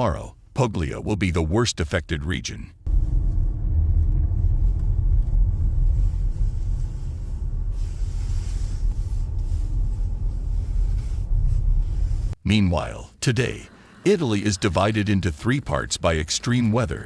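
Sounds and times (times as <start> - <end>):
low rumble: 2.8 - 12.4.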